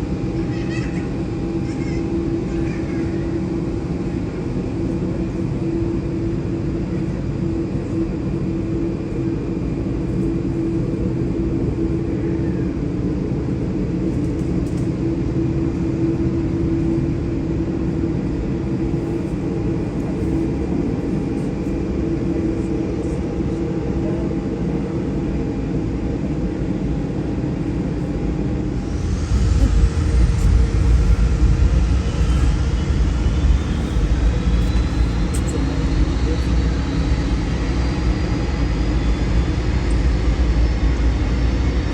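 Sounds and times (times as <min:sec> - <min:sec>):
jet engines rumbling: 0:00.0 - 0:41.9
rising engine whine: 0:28.3 - 0:41.9.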